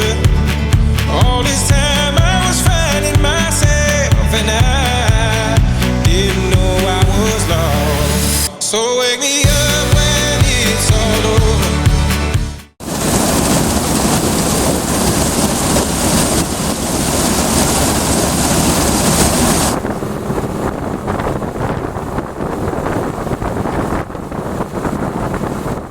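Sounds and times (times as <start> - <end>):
harvesting machinery running: 0.0 - 8.5, 9.4 - 25.9
music: 0.0 - 8.5, 9.4 - 12.8
wind buffeting microphone: 9.5 - 25.9.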